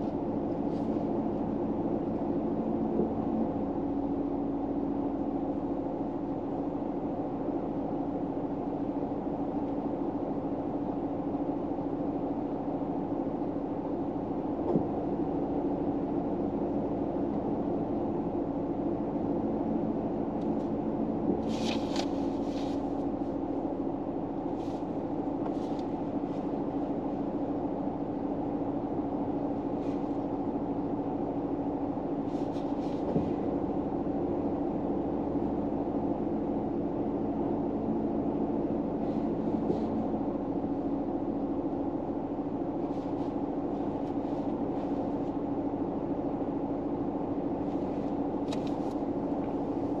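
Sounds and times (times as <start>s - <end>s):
soft rustles: 0.0s - 1.2s, 21.4s - 23.4s, 24.4s - 26.9s, 32.2s - 33.6s, 42.8s - 45.5s, 47.6s - 50.0s
low drone inside car: 0.0s - 50.0s.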